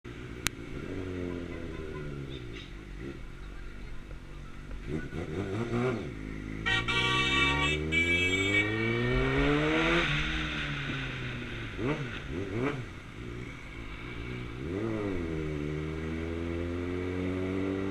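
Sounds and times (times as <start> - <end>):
motorcycle engine accelerating: 0.1 - 17.9
high steady tone: 6.7 - 11.1.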